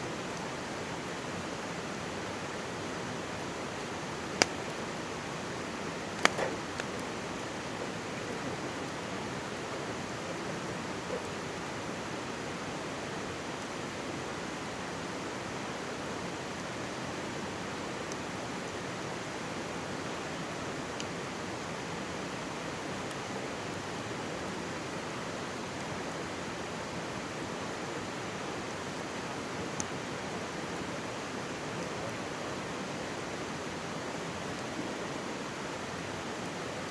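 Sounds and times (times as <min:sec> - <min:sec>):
mountain stream rushing: 0:00.0 - 0:36.9
campfire crackling: 0:00.8 - 0:12.5.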